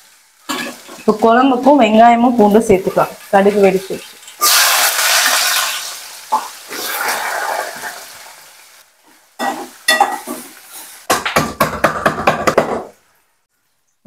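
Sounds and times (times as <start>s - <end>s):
shallots and garlic sizzling in oil: 0.0s - 11.2s.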